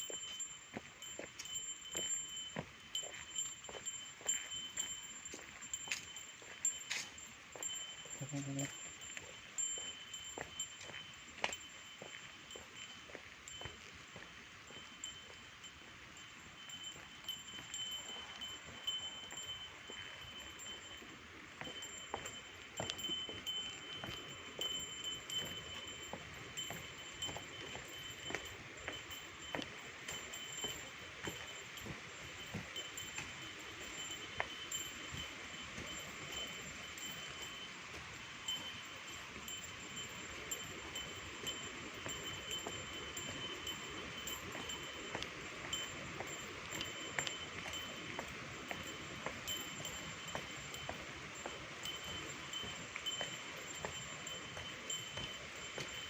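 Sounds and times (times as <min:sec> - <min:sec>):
insects droning: 0:16.2 - 0:48.2.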